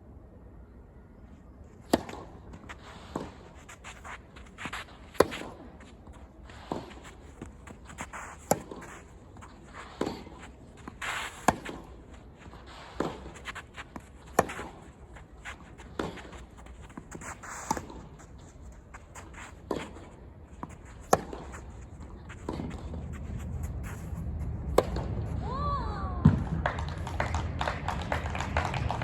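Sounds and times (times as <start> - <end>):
footsteps on court: 1.3 - 25.4
racket hitting tennis ball: 1.8 - 25.4.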